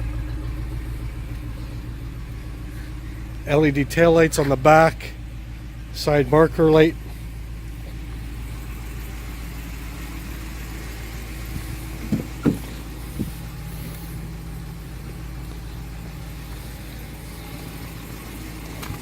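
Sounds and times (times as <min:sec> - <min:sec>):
truck engine idling: 0:00.0 - 0:19.0
light knocks: 0:12.0 - 0:13.4.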